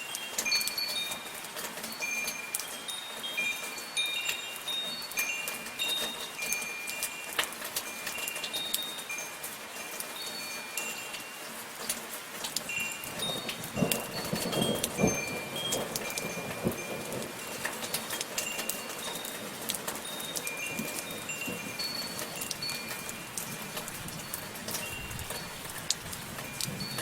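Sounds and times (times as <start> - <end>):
metal wind chimes ringing: 0.0 - 27.0
soft rainfall: 0.0 - 27.0
heavier drips: 10.4 - 27.0.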